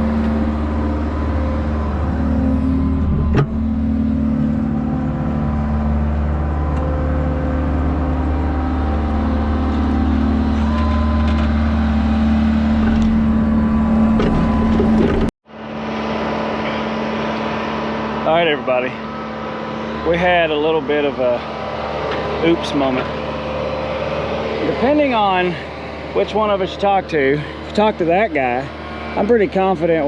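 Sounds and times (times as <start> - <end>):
brief whine: 0.0 - 17.6
diesel engine running: 0.0 - 30.0
quiet engine hum: 0.0 - 30.0.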